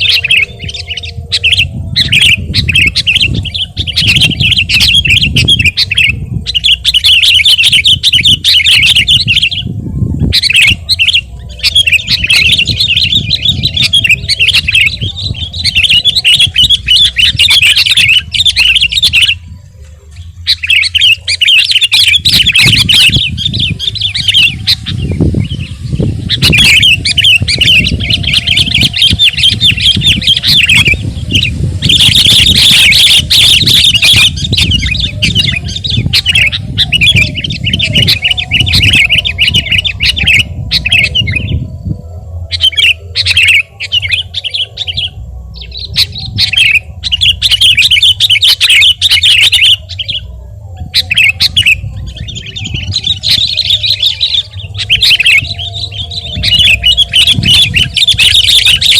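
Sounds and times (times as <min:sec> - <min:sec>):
bulbul singing rapid chattering notes: 0:00.0 - 0:19.6, 0:20.2 - 0:58.9
low rumble: 0:22.3 - 0:47.6, 0:49.9 - 0:58.9.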